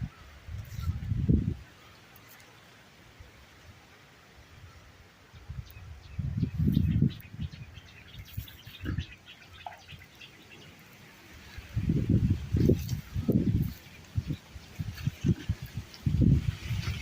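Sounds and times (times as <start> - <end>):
wind gusting across microphone: 0.0 - 1.8, 5.4 - 9.2, 11.3 - 17.0
small birds chirping: 5.4 - 17.0.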